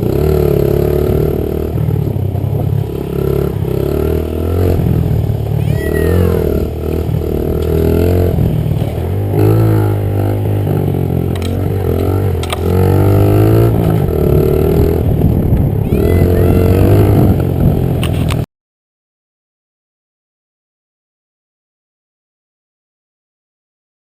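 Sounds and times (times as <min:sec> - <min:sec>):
dirt bike engine revving: 0:00.0 - 0:18.4
sharp clicks: 0:11.3 - 0:11.6, 0:12.4 - 0:12.7.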